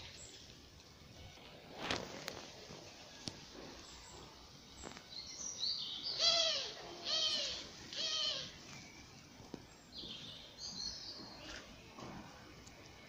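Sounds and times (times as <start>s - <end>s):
harsh bird calls: 4.8s - 8.8s.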